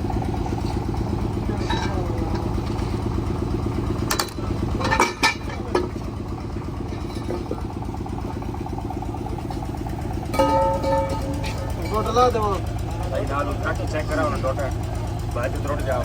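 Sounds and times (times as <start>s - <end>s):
vehicle engine idling: 0.0s - 16.0s
sharp metallic clanks: 0.4s - 8.1s, 9.2s - 13.0s.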